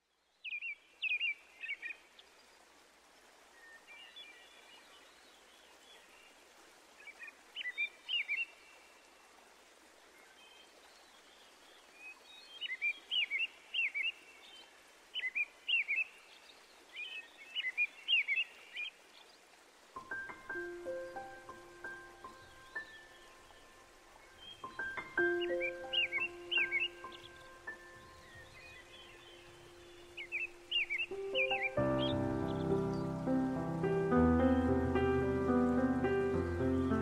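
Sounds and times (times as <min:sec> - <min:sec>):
faint background hiss: 0:00.0 - 0:37.0
small birds chirping: 0:10.1 - 0:37.0.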